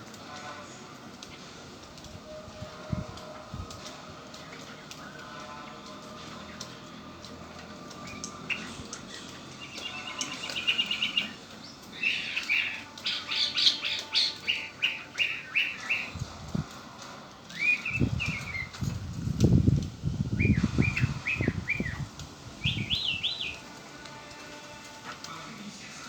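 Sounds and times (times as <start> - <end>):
blackbird calling: 8.0 - 16.2, 17.5 - 18.8, 20.4 - 23.7.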